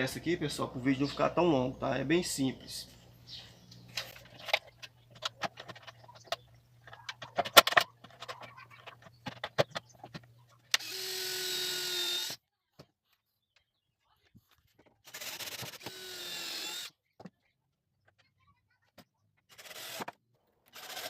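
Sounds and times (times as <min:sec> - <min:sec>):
power drill driving screw: 0:10.8 - 0:12.4, 0:15.0 - 0:16.9, 0:19.5 - 0:20.1, 0:20.7 - 0:21.0.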